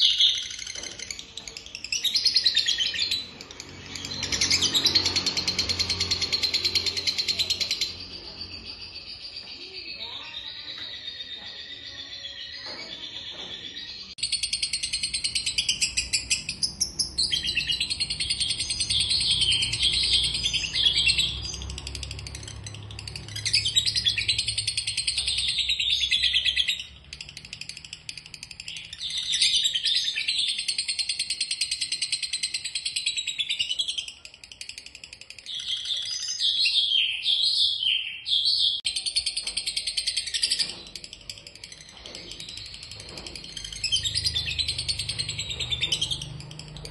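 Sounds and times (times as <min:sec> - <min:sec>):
songbird singing rapid high notes: 0:14.0 - 0:39.2.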